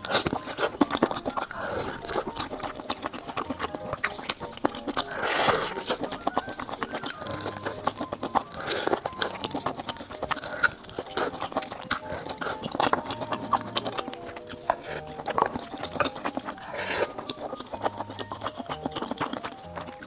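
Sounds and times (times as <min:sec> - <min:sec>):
soft background music: 0:00.0 - 0:20.0
wet chewing and smacking: 0:00.0 - 0:20.0.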